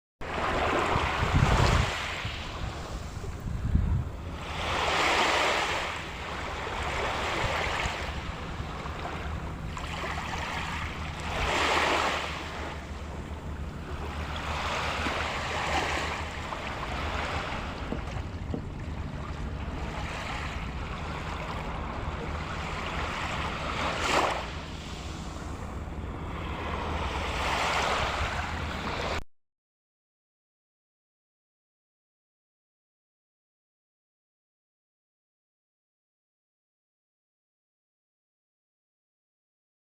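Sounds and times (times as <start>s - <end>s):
sea waves breaking on shore: 0.2s - 29.2s
wind rumble on microphone: 0.2s - 29.2s.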